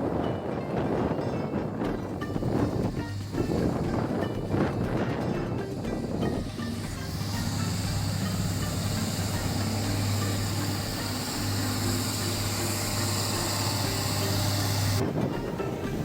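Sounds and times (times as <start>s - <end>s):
road and wind noise: 0.0s - 16.0s
vehicle engine hum: 2.4s - 16.0s
thin hiss: 5.7s - 16.0s.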